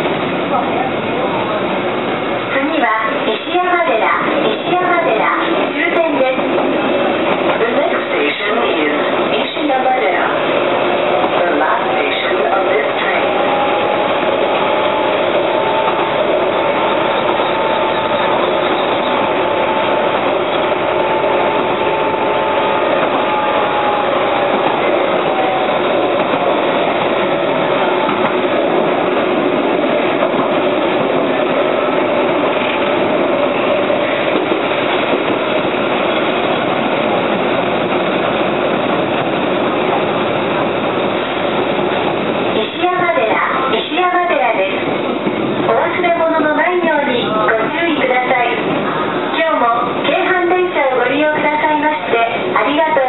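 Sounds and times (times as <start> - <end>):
electric train running: 0.0 - 53.0.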